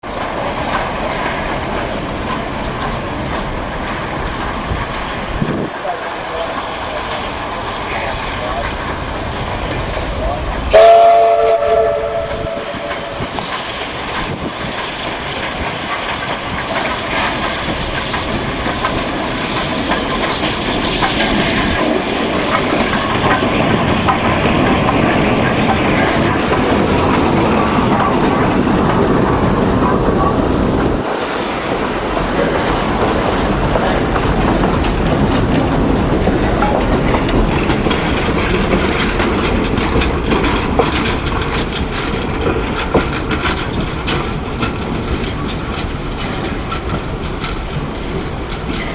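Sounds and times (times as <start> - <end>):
train wheels clattering on rails: 0.0 - 48.9
steam train whistle: 10.7 - 13.3.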